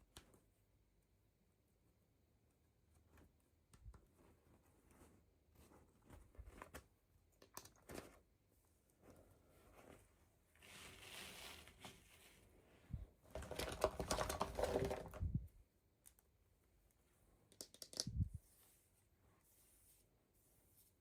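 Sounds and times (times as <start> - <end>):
packaging rustling: 13.3 - 15.2
plastic clicks and rattles: 13.3 - 15.2, 17.5 - 18.2.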